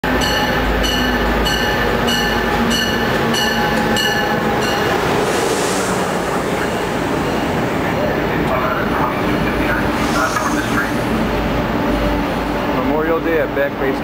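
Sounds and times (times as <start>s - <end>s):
train rumbling in: 0.0s - 14.0s
bell ringing: 0.2s - 5.0s
brief hiss of train cars: 9.9s - 11.0s.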